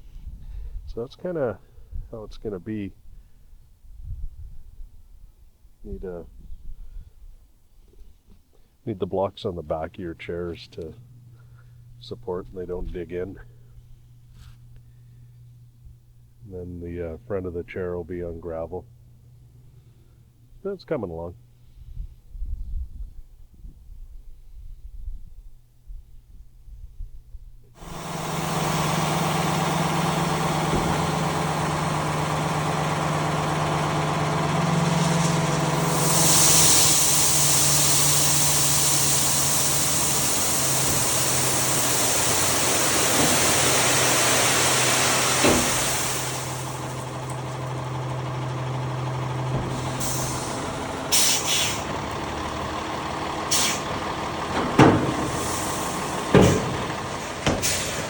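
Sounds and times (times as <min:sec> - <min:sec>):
loud hiss: 0:27.8 - 0:52.3, 0:53.4 - 0:58.0
truck engine running: 0:27.8 - 0:58.0.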